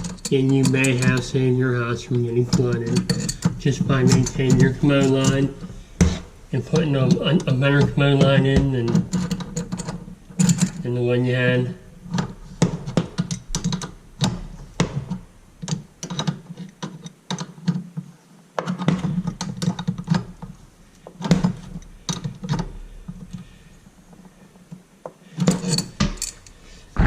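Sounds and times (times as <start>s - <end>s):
clicks and taps of pipe fittings: 2.5s - 10.8s, 12.1s - 17.8s, 18.6s - 23.6s.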